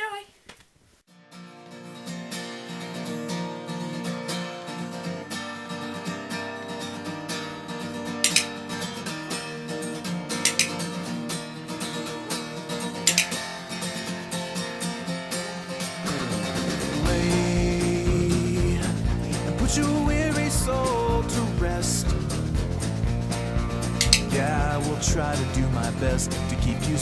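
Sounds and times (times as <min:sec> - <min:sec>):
acoustic guitar strumming: 0:01.1 - 0:27.0.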